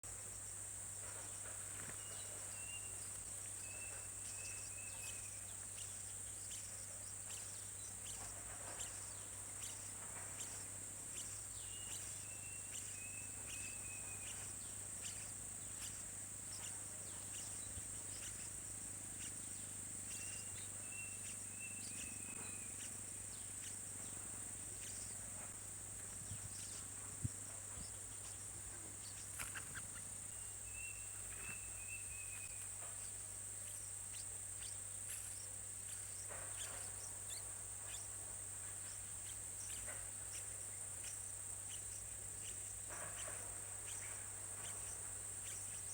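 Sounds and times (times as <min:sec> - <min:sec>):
high bird chirps: 0:03.6 - 0:38.1.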